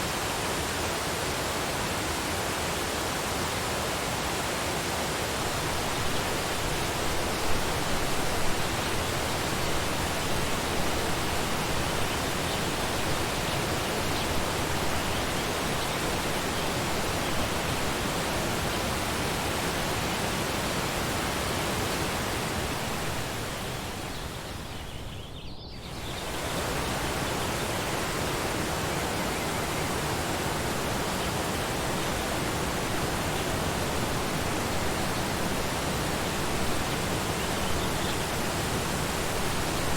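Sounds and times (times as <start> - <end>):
waterfall roaring: 26.2 - 39.9.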